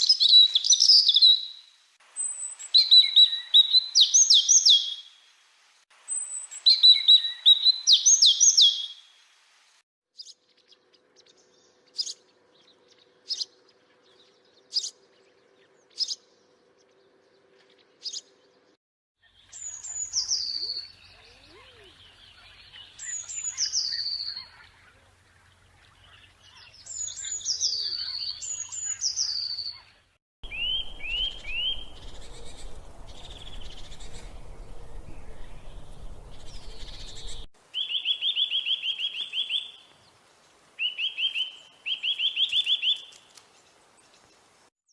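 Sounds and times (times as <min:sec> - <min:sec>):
songbirds singing and calling: 0:00.0 - 0:05.2, 0:06.1 - 0:09.1, 0:10.2 - 0:44.9
bird short rising notes: 0:30.5 - 0:37.5
steady background hiss: 0:30.5 - 0:41.9.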